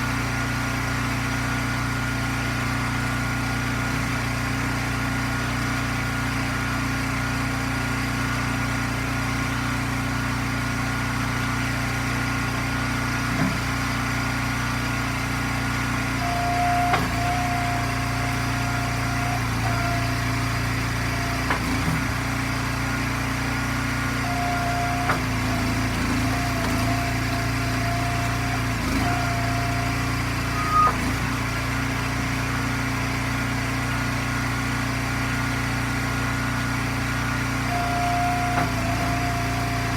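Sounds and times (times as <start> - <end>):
gas engine running: 0.0 - 39.9
high whine: 24.2 - 31.4.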